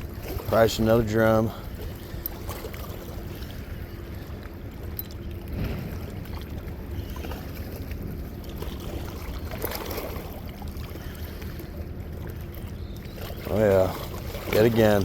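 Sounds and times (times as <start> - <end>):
river water: 0.0 - 15.0.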